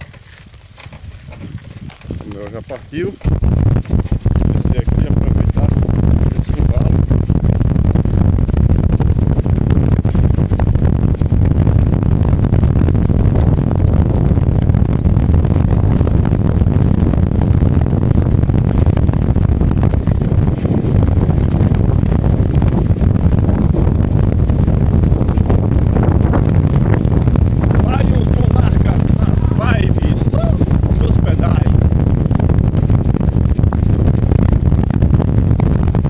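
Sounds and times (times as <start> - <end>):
tyres rolling on dirt: 0.0 - 5.5, 27.0 - 31.9
wind buffeting microphone: 0.0 - 36.0.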